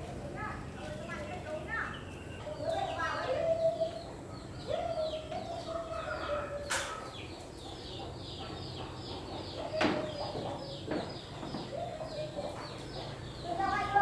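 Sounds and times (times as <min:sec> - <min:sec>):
chicks peeping: 0:03.6 - 0:14.0.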